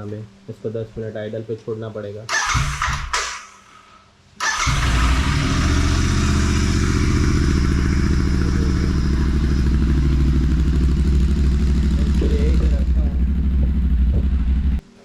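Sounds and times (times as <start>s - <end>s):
motorcycle engine idling: 4.5s - 14.8s.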